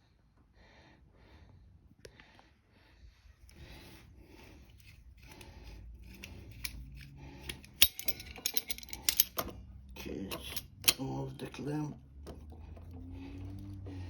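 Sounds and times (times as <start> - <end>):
tools rubbing and shuffling: 3.4 - 14.0
metal tools clicking: 4.7 - 12.5.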